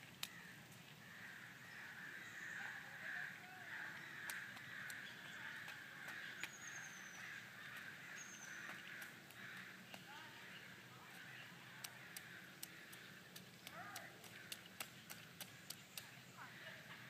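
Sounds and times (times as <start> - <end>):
chorus of bird calls: 0.3 - 14.8, 15.5 - 17.0.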